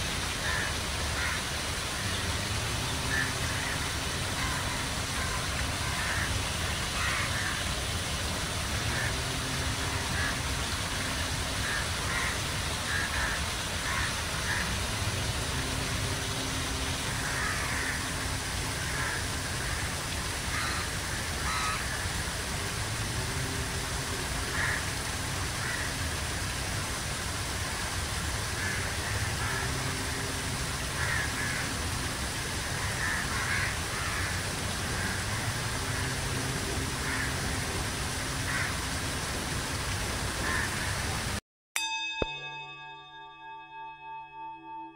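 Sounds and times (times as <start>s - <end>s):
steady background rush: 0.0s - 41.4s
birds calling: 0.4s - 22.8s.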